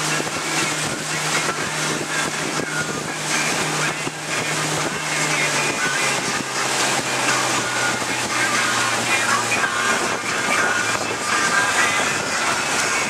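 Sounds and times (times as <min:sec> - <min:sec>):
outboard motor running: 0:00.0 - 0:13.0
rush of wind and water: 0:00.0 - 0:13.0.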